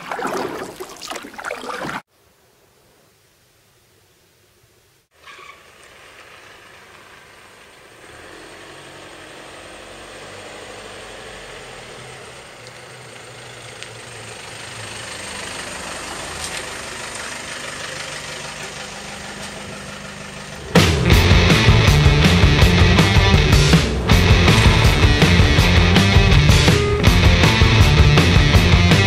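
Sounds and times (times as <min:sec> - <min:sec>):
car engine humming: 0:05.5 - 0:29.0.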